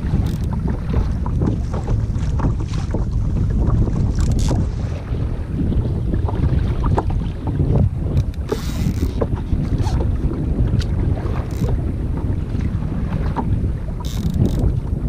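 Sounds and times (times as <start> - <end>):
wind buffeting microphone: 0.0 - 15.0
water splashing: 6.1 - 11.8.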